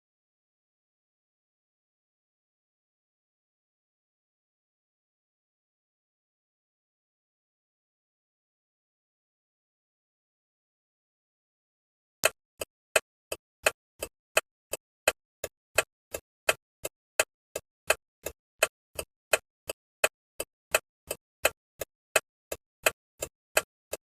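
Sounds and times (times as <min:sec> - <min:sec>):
turn-signal indicator ticking: 0:12.2 - 0:24.0.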